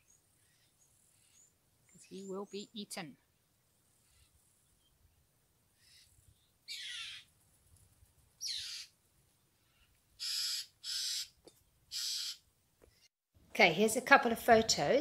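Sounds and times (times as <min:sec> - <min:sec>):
birds calling with downward slides: 0:05.8 - 0:07.3, 0:08.4 - 0:08.9, 0:09.6 - 0:13.1
harsh noisy bird calls: 0:05.8 - 0:07.3, 0:08.4 - 0:08.9, 0:09.7 - 0:13.1.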